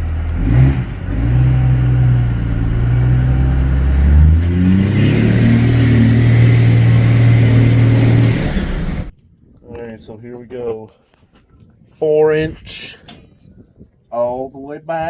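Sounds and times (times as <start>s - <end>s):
diesel truck accelerating hard: 0.0s - 9.1s.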